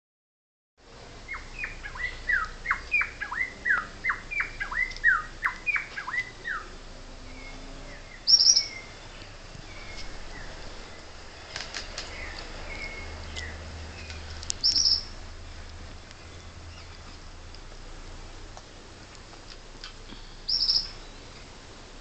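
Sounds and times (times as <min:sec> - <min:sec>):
bird chirping: 0:01.2 - 0:17.4, 0:20.2 - 0:21.6.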